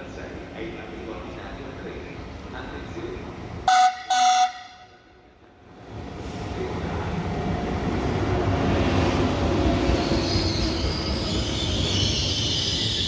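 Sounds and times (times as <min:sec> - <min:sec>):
train wheels rumbling on rails: 0:05.5 - 0:13.0
high-pitched train squeal: 0:09.6 - 0:13.0.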